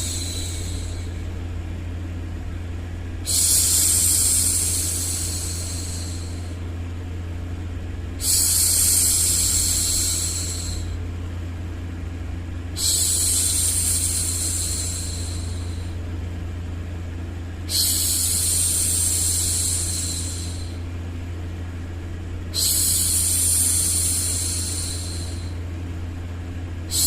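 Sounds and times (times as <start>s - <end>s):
low white noise: 0.0s - 27.0s
woman shushing: 3.2s - 6.6s, 17.7s - 20.8s, 22.6s - 25.6s.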